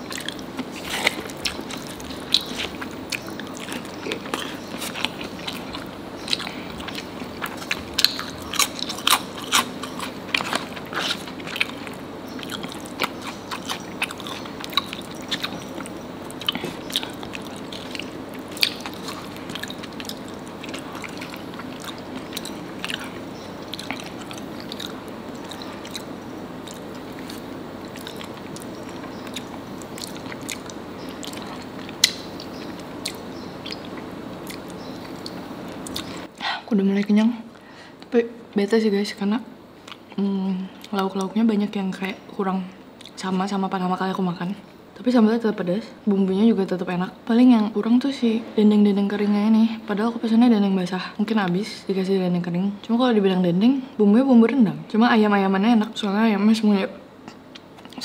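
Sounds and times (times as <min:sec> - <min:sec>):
person chewing crunchy food: 0:00.0 - 0:36.4
wet mouth clicks: 0:11.6 - 0:36.4.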